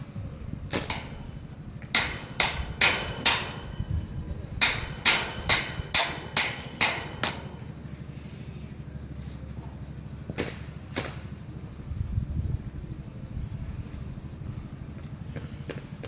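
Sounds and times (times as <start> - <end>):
hammer striking metal spike: 0.8 - 1.4, 2.0 - 7.8.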